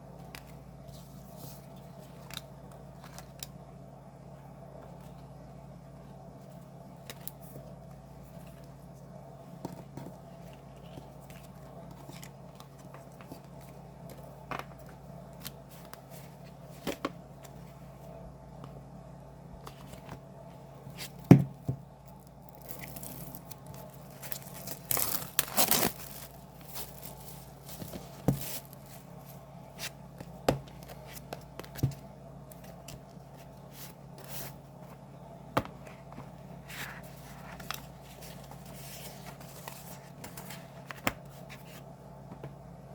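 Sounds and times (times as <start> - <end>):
wrapping tearing and rustling: 22.2 - 29.9.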